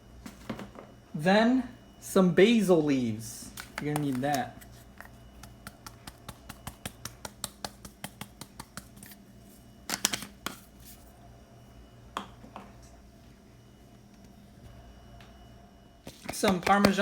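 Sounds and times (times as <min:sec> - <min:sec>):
plastic spice container clicking: 0:03.6 - 0:04.4.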